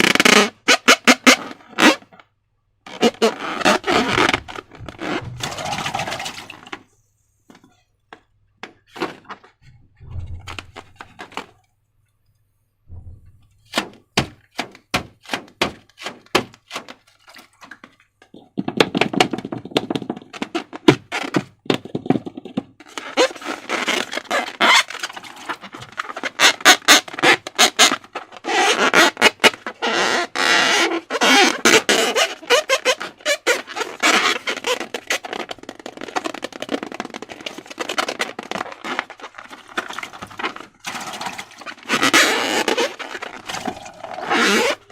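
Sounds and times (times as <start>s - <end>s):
dull thumps: 2.9s - 6.7s, 7.5s - 11.5s, 12.9s - 16.9s.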